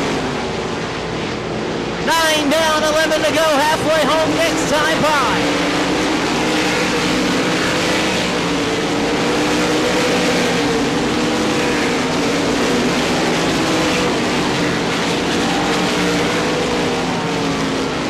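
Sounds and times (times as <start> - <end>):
racing car engines: 0.0 - 18.0.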